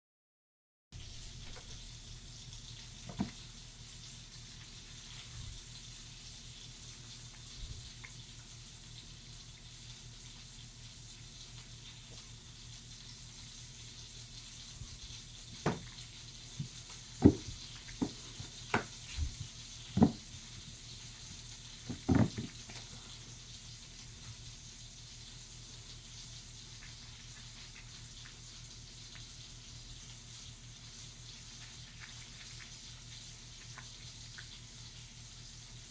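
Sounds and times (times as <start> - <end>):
sharp knocks: 15.6 - 15.9.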